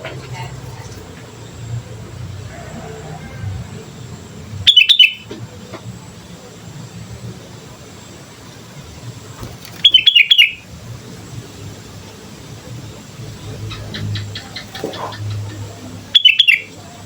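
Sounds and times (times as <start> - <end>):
bird chattering song: 4.6 - 5.4, 9.4 - 10.7, 13.3 - 17.0.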